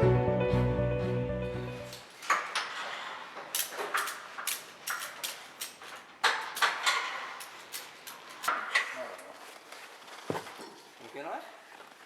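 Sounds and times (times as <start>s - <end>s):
sharp clicks and knocks of tools: 1.9s - 9.3s.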